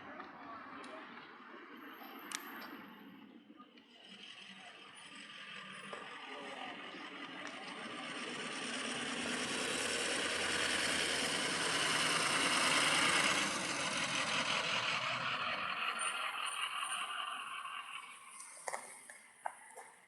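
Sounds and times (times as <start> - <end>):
vehicle passing by: 4.0 - 19.1.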